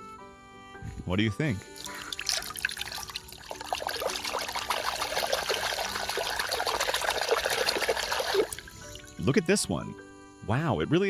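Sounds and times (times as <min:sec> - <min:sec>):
water pouring and splashing: 0:01.6 - 0:09.4.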